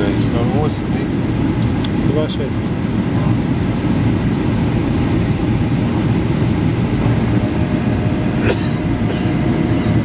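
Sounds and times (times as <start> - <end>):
airliner cabin low rumble: 0.0 - 10.0.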